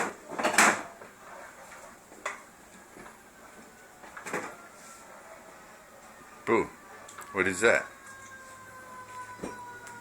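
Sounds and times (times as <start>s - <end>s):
items clattering on fridge shelves: 0.0s - 2.4s.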